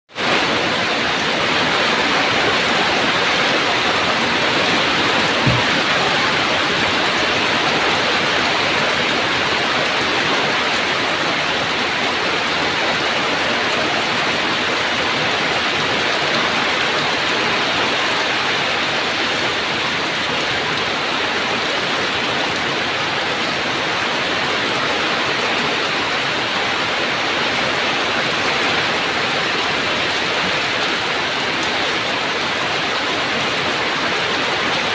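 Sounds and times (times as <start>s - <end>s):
heavy rain: 0.1s - 34.9s
low thump: 5.4s - 6.0s.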